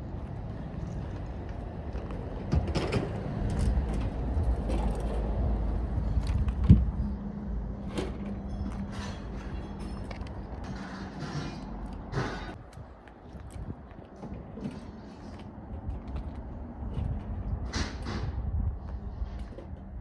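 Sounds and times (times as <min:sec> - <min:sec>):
motor rumbling and humming: 0:00.1 - 0:12.6
metal parts knocking and clanking: 0:07.8 - 0:12.6.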